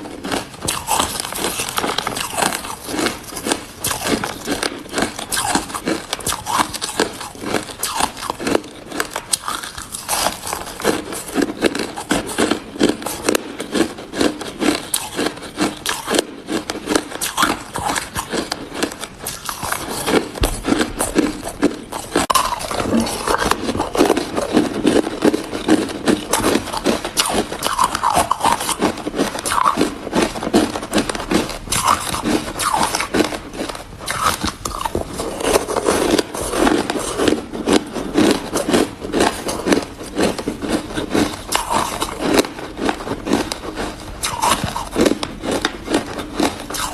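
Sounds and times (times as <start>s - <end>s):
ice being chewed: 0.0s - 46.9s.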